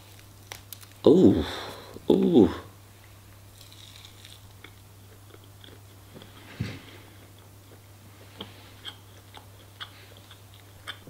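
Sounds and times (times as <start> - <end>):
chewing fried chicken: 3.5 - 11.0.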